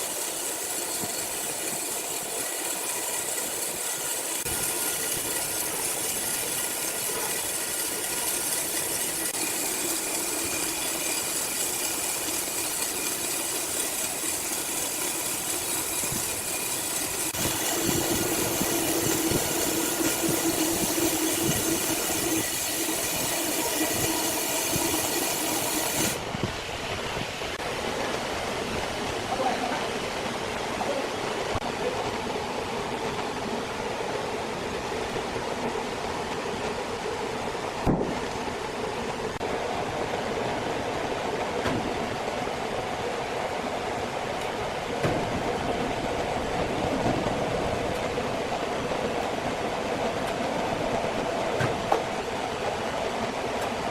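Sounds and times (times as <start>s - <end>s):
sawmill machinery whining: 0.0s - 26.8s.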